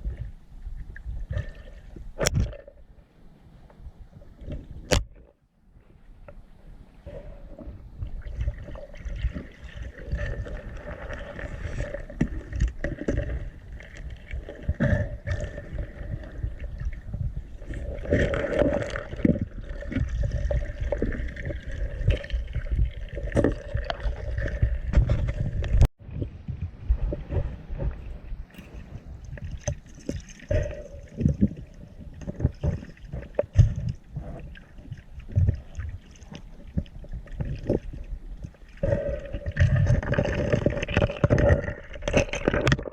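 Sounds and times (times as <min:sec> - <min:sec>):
water sloshing and gurgling: 0:00.0 - 0:03.2, 0:03.8 - 0:42.9
low rumble: 0:06.2 - 0:35.6.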